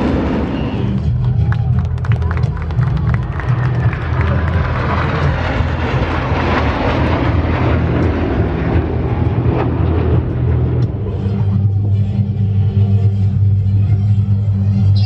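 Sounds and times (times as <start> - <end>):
jets passing roar: 0.0 - 1.2, 2.3 - 12.8.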